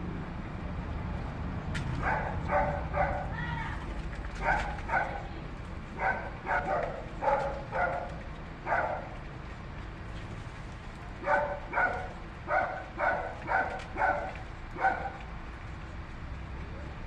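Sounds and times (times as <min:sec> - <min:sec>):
animal barking calls: 0:02.0 - 0:03.8, 0:04.4 - 0:05.3, 0:05.9 - 0:09.2, 0:11.2 - 0:15.3.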